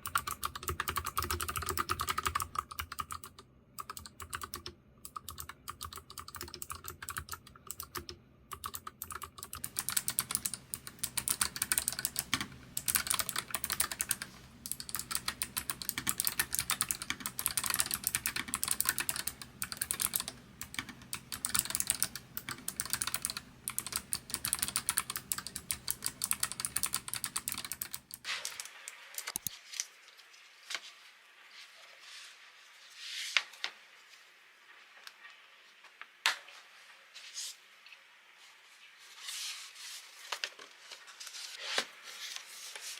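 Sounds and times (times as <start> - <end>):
low background hum: 0.0 - 28.3
clicky keyboard typing: 0.0 - 28.6.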